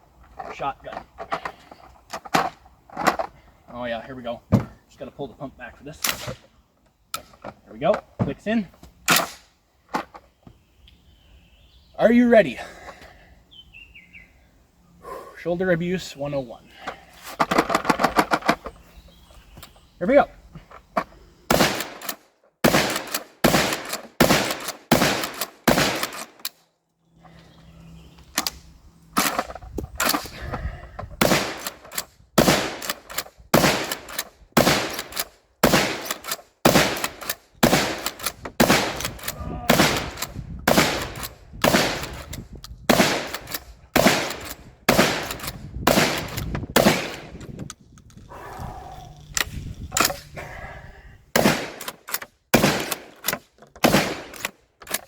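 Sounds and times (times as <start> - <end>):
shotgun blasts: 21.5 - 26.4, 31.2 - 31.8, 32.4 - 42.2, 42.9 - 47.3, 51.4 - 51.9, 52.5 - 53.1, 53.8 - 54.4.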